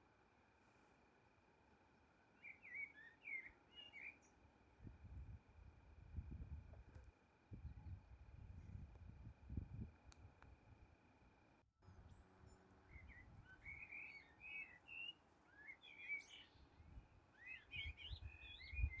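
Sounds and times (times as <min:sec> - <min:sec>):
songbirds chirping: 0:00.1 - 0:19.0
faint low rumble: 0:04.2 - 0:13.9.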